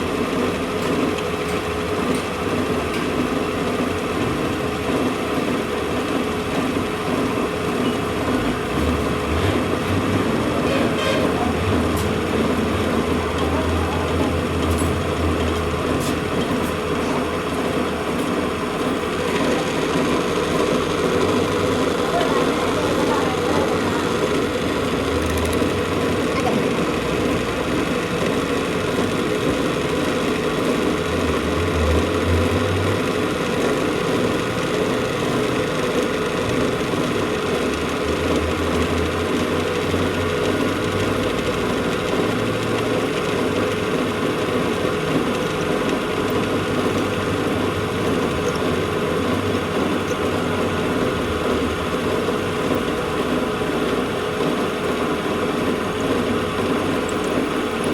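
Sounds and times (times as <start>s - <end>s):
machine humming: 3.3s - 57.9s.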